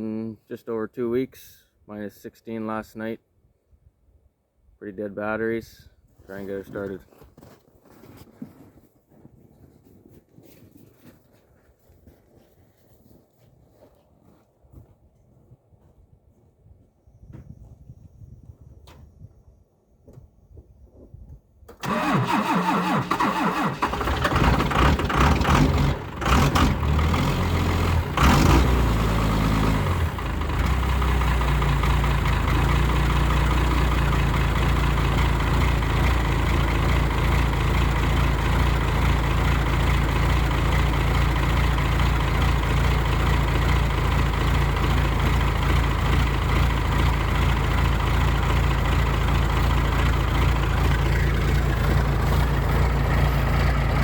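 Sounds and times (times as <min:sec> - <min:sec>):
diesel engine cranking: 0:21.7 - 0:54.0
diesel engine idling: 0:21.8 - 0:54.0.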